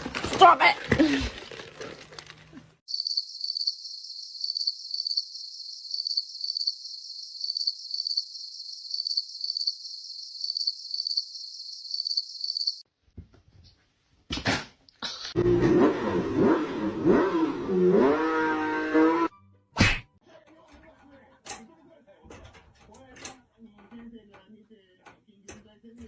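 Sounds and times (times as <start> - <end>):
cricket chirping: 2.9 - 12.8.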